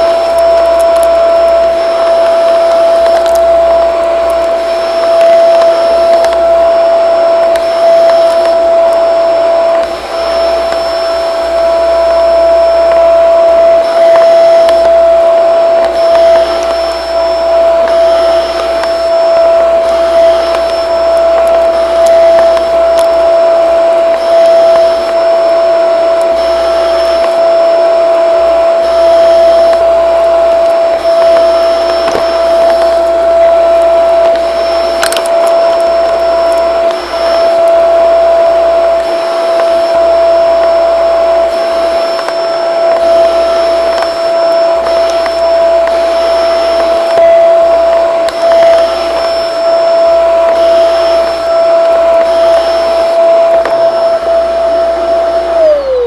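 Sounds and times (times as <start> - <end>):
vacuum cleaner running: 0.0 - 56.0
sharp click: 34.2 - 35.9.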